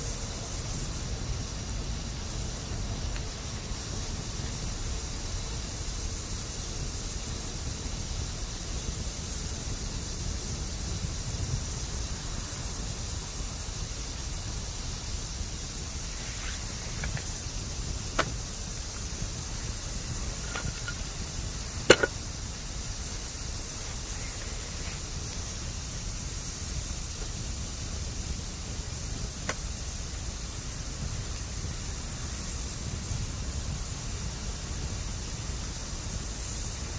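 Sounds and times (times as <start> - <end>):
campfire hissing: 0.0 - 36.9
fire crackles: 0.0 - 36.9
loud pop: 21.9 - 22.2.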